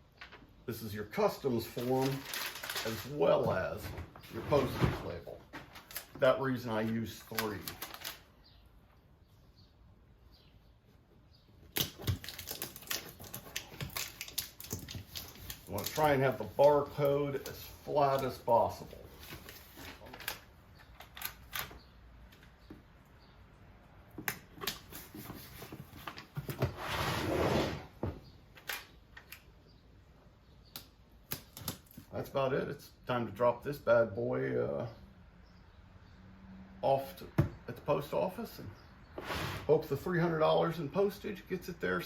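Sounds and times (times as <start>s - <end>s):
paper crinkling and crackling: 1.4s - 8.3s, 11.7s - 21.7s.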